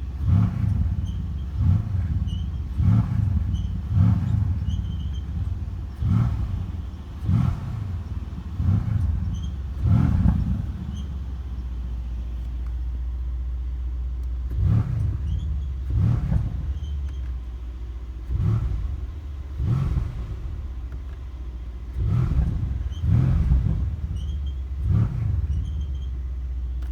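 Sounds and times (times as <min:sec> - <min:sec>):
exhaust flap squeaks: 0:00.0 - 0:13.0, 0:14.6 - 0:17.6, 0:22.4 - 0:26.9
car engine idling and revving: 0:00.0 - 0:26.9.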